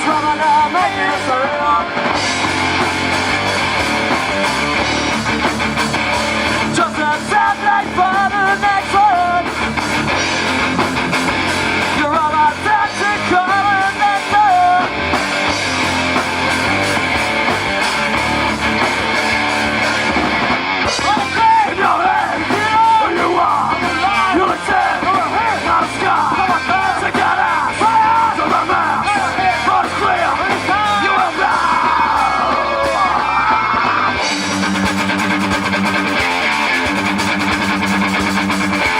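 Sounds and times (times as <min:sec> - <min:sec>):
live rock band playing: 0:00.0 - 0:38.9
shouted sung vocals: 0:06.7 - 0:09.5, 0:21.0 - 0:34.3.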